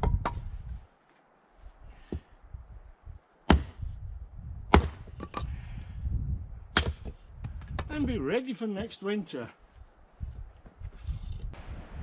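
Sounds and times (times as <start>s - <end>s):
axe chopping wood: 3.5s - 3.9s, 4.7s - 5.5s, 6.8s - 7.9s.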